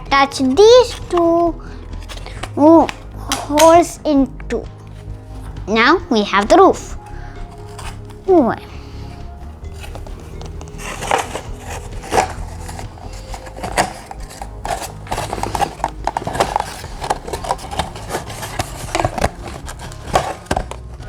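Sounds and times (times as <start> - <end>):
cardboard knocking and rubbing: 4.8 - 21.0.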